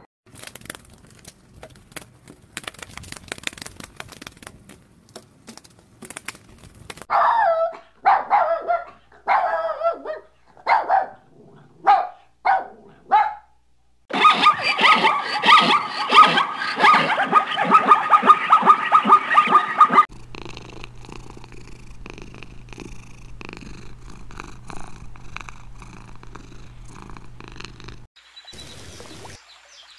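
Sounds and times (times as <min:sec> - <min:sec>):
small dog barking: 0:07.1 - 0:19.9
animal pulsing rasp: 0:14.1 - 0:28.0.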